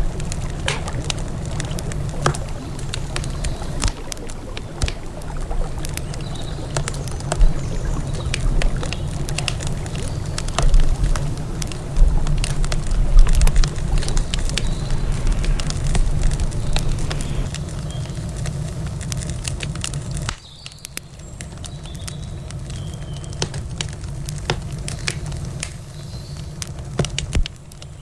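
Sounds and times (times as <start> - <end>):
steady low rumble: 0.0 - 19.0
campfire crackling: 0.0 - 27.9.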